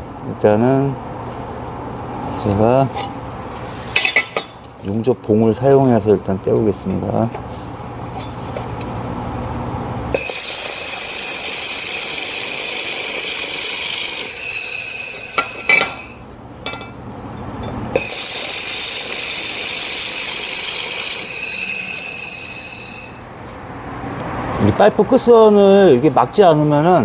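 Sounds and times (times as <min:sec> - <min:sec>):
laser welder hissing and whining: 0:10.2 - 0:16.2, 0:18.0 - 0:23.2.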